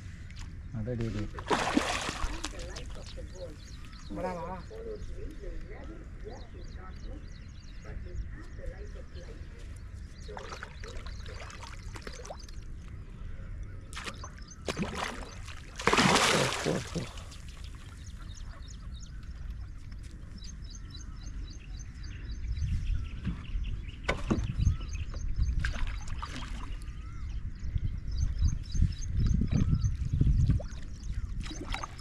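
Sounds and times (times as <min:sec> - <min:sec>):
water splashing and sloshing: 0:00.2 - 0:06.3, 0:09.6 - 0:13.2, 0:13.8 - 0:18.6, 0:25.5 - 0:27.0, 0:29.4 - 0:32.0
bird chirping: 0:02.4 - 0:15.6, 0:16.3 - 0:32.0.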